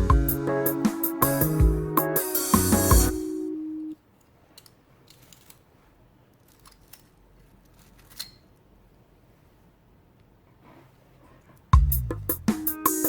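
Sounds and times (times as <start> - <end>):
background music: 0.0 - 4.0, 11.8 - 13.0
small repair tools clicking: 6.4 - 8.6.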